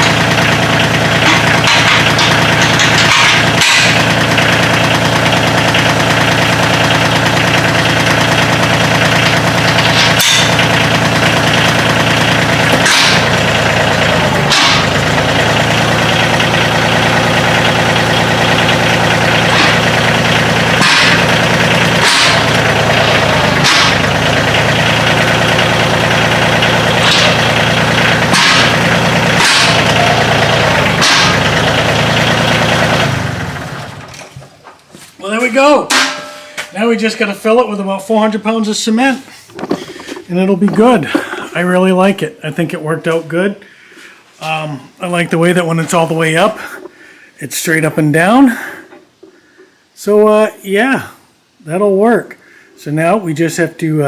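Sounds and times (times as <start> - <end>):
tractor diesel engine running: 0.0 - 43.6
sharp clicks or knocks: 20.8 - 24.4, 27.0 - 31.6.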